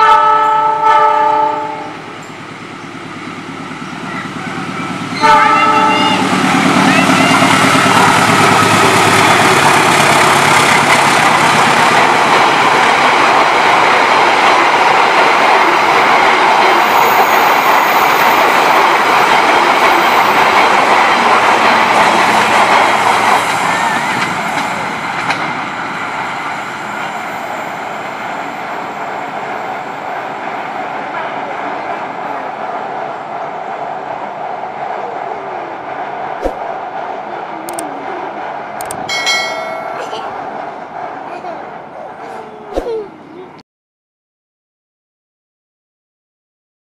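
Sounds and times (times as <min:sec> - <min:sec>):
diesel locomotive engine running: 0:00.0 - 0:42.6
wheels clattering on rail: 0:02.2 - 0:28.6, 0:38.4 - 0:41.3.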